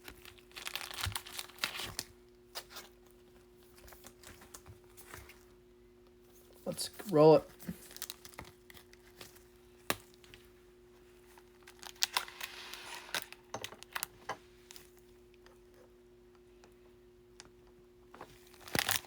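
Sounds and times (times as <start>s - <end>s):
foil wrapper crinkling and tearing: 0.0s - 2.9s, 7.7s - 10.4s, 11.4s - 14.9s, 18.4s - 19.0s
faint steady hum: 0.0s - 19.0s.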